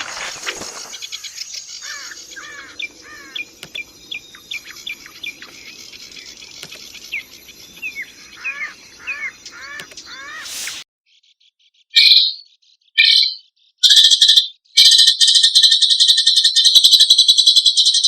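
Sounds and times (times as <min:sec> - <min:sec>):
high insect buzz: 0:00.0 - 0:10.8
songbird whistling: 0:00.6 - 0:10.8.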